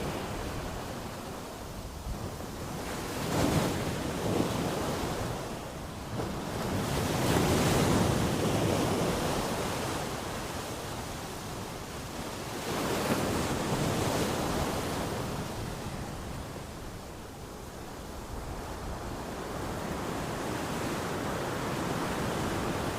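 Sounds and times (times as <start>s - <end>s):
sea waves breaking: 0.0s - 22.9s.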